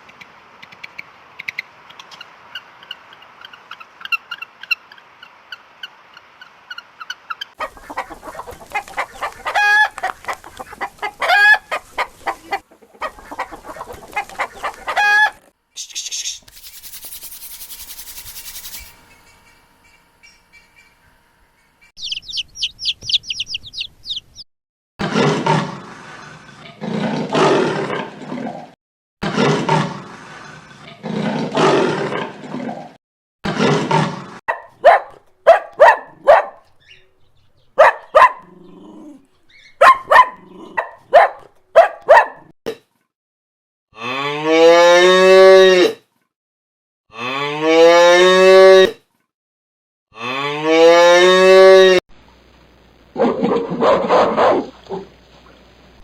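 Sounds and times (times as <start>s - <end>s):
short sharp animal calls: 14.5s - 20.9s
high chirps: 15.8s - 24.4s
cow mooing: 44.0s - 45.9s, 47.1s - 49.0s, 50.2s - 52.0s.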